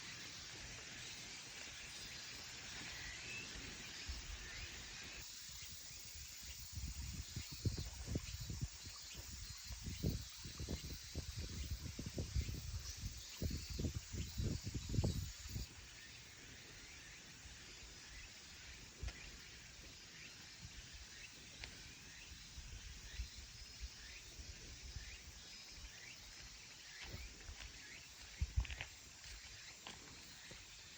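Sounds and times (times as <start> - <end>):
steady background hiss: 0.0 - 7.5
faint bird chirps: 0.0 - 30.9
steady hiss of water or insects: 0.0 - 30.9
wind gusts on microphone: 6.6 - 15.8, 28.3 - 28.9.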